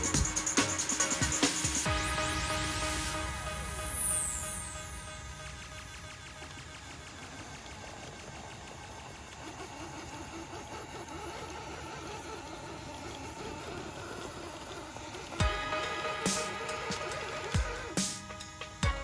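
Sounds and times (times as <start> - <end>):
loud music: 0.0 - 5.8, 15.4 - 19.0
small electric motor whirring: 3.0 - 18.6.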